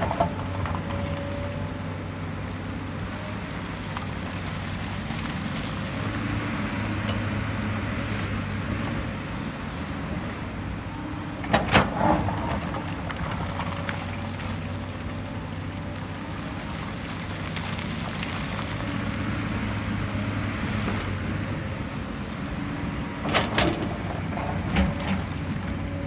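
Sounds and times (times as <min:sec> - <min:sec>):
excavator diesel engine running: 0:00.0 - 0:26.0
earth and stones rushing: 0:11.3 - 0:22.2.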